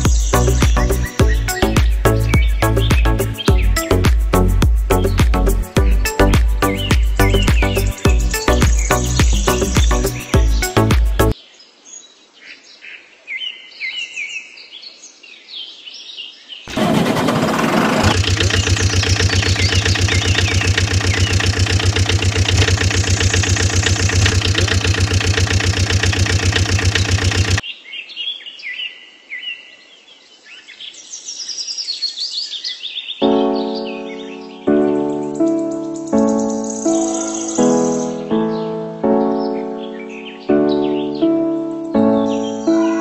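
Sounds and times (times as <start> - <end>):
birds singing: 0.0 - 16.8, 18.0 - 43.0
engine cranking and starting: 16.7 - 27.6
engine running with fast chug: 16.7 - 27.6.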